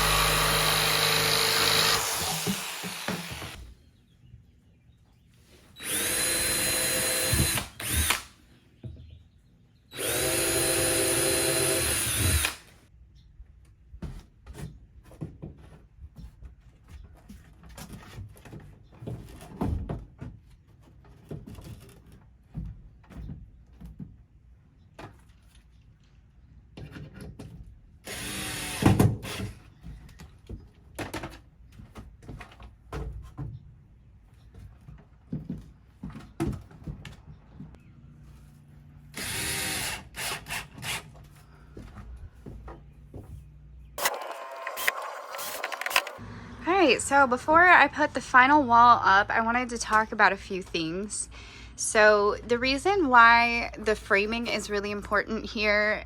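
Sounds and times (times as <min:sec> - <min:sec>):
power drill driving screws: 0:00.0 - 0:03.6, 0:05.8 - 0:08.4, 0:09.9 - 0:12.8, 0:28.1 - 0:29.6, 0:39.1 - 0:41.1, 0:44.0 - 0:46.2.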